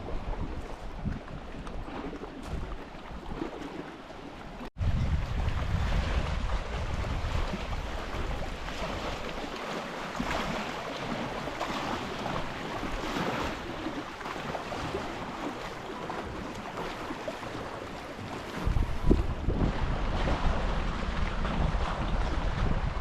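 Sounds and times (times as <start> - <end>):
wind buffeting microphone: 0.0 - 3.6, 4.7 - 23.0
lake waves lapping: 0.0 - 23.0.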